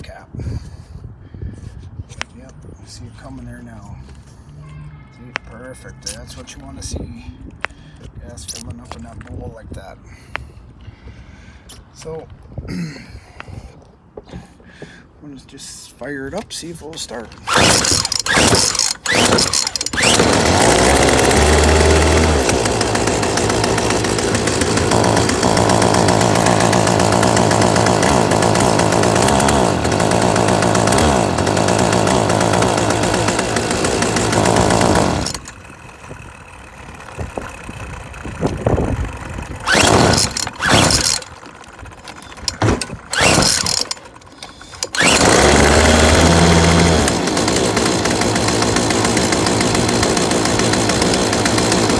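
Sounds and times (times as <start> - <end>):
recoil starter pulls: 16.3 - 51.9
string trimmer engine running: 17.1 - 51.9.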